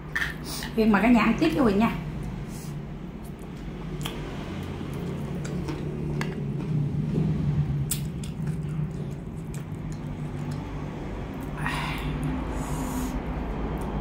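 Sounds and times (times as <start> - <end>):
steady low hum: 0.0 - 14.0
chewing with wet mouth sounds: 3.2 - 11.6.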